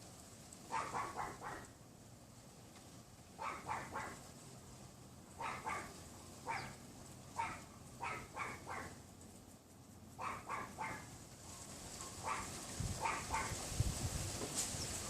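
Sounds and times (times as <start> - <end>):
small dog yapping: 0.7 - 1.7, 3.4 - 4.2, 5.4 - 6.8, 7.4 - 9.0, 10.2 - 11.1, 12.2 - 13.6.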